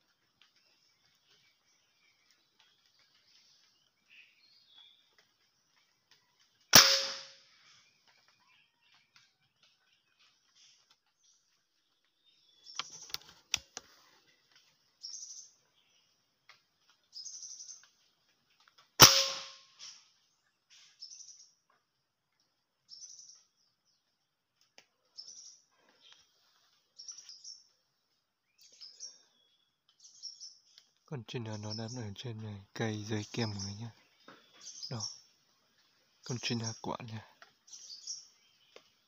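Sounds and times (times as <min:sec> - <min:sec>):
small birds chirping: 0:00.0 - 0:39.0
air rifle shot: 0:06.7 - 0:07.4, 0:19.0 - 0:19.6.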